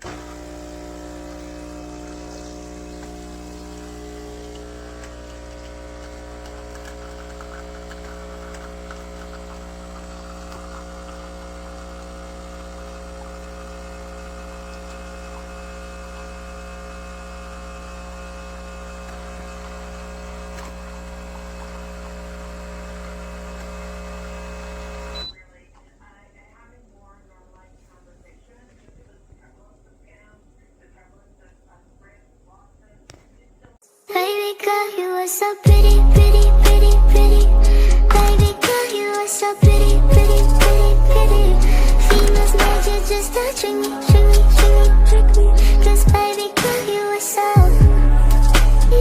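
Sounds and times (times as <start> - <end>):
coffee crackling into cup: 0.0 - 25.2, 36.0 - 49.0
espresso machine pump humming: 0.0 - 25.3, 35.6 - 49.0.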